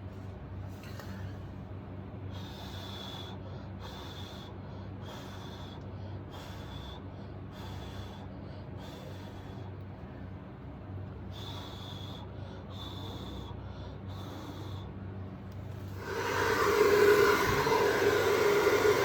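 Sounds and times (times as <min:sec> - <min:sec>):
steady low hum: 0:00.0 - 0:19.0
bursts of hissing air with whistle: 0:16.0 - 0:19.0.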